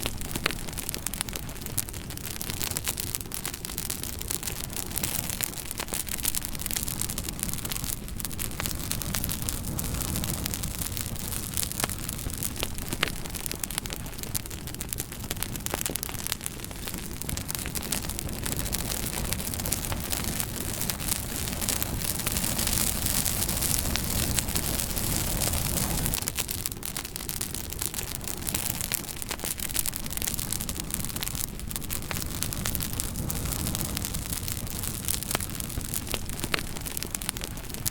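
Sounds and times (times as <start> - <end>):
wood fire crackling: 0.0 - 37.9.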